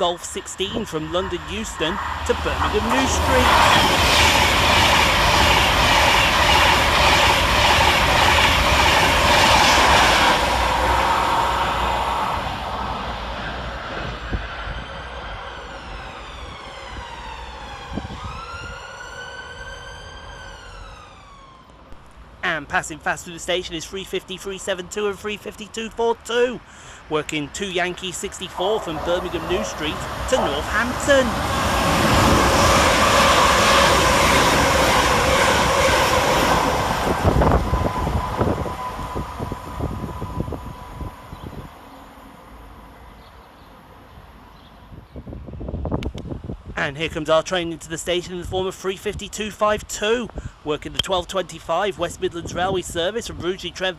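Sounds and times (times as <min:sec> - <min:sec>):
train wheel rumble: 0:00.0 - 0:18.9, 0:28.2 - 0:46.7
electric train inverter whine: 0:00.0 - 0:22.4, 0:27.5 - 0:46.7.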